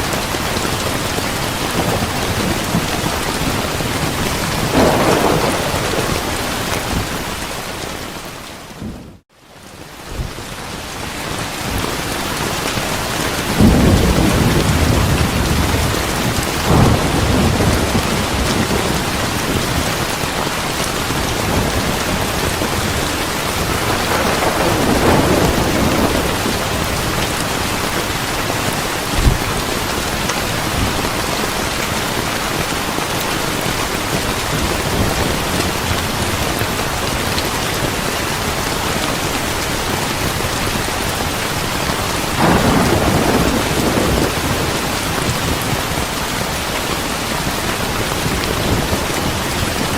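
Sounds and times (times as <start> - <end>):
heavy rain: 0.0 - 49.9
rolling thunder: 1.0 - 9.2, 13.4 - 31.2, 42.2 - 46.2
sharp thunder crack: 4.5 - 7.8, 23.6 - 27.2, 42.4 - 44.8.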